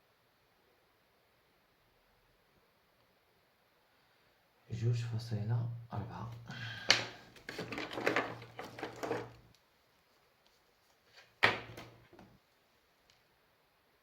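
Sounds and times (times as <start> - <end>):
objects rustling and clattering: 6.8 - 9.6, 10.5 - 12.4.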